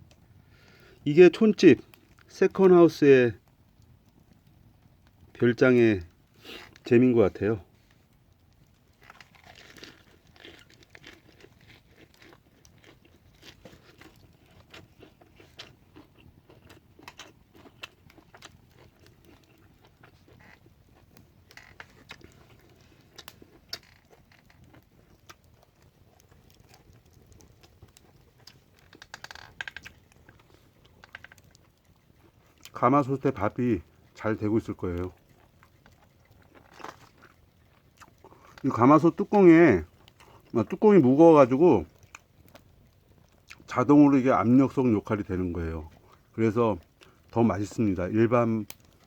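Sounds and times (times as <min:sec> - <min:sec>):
chewing crunchy lettuce: 0:08.7 - 0:49.0.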